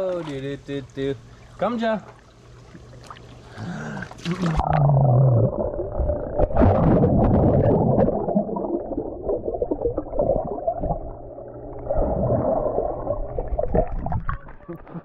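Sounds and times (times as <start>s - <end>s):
muffled underwater water churning: 0.0s - 15.0s.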